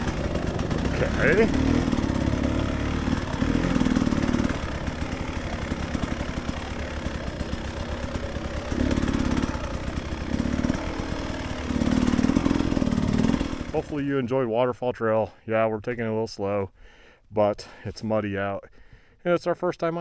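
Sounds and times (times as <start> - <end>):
dirt bike engine revving: 0.0 - 14.2.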